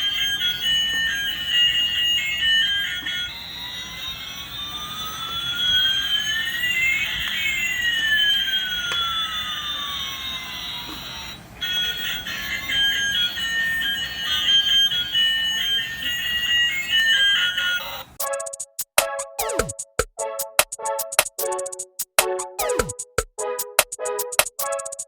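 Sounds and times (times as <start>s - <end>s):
beeping electronic melody: 16.4s - 25.0s
synthetic gliding tones: 18.2s - 25.0s.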